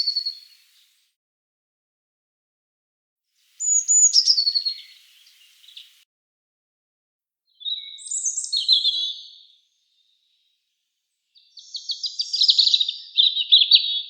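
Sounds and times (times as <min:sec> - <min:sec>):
songbird trilling: 0:00.0 - 0:00.8, 0:03.6 - 0:06.0, 0:07.6 - 0:09.5.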